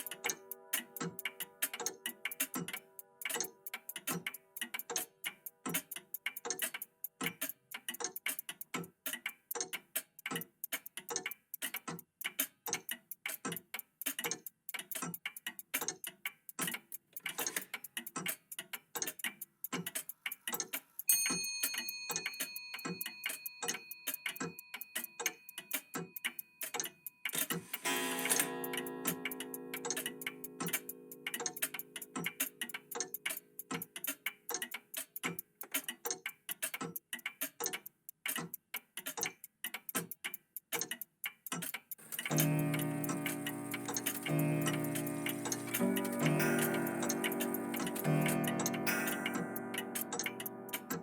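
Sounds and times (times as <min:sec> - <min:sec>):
mechanical clocks ticking: 0:00.0 - 0:51.0
clock bell chime: 0:21.1 - 0:24.3, 0:27.8 - 0:32.1, 0:42.3 - 0:51.0.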